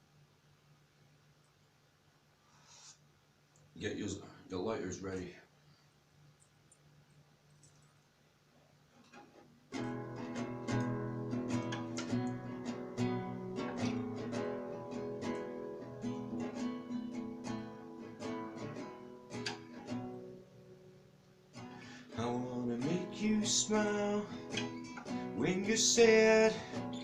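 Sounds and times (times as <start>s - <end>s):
acoustic guitar strumming chords: 9.7s - 27.0s.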